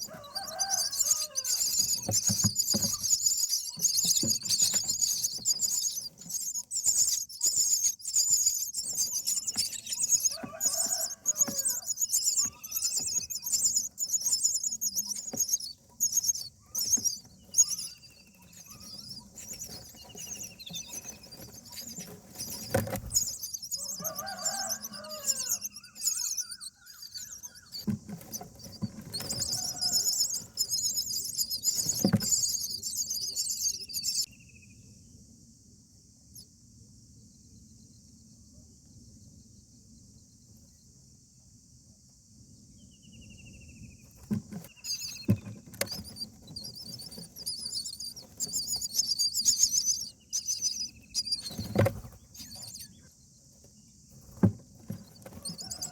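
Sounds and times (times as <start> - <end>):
adult bird calls: 0.0 - 34.2
chicks chattering calls: 0.0 - 34.3, 44.0 - 55.9.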